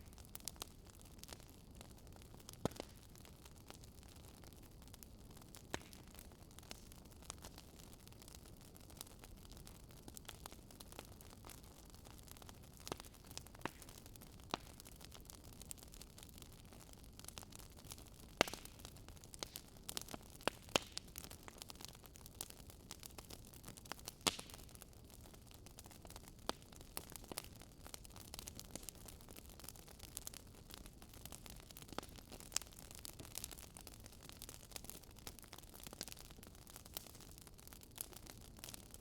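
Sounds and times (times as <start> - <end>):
fire crackling with pops: 0.0 - 39.0.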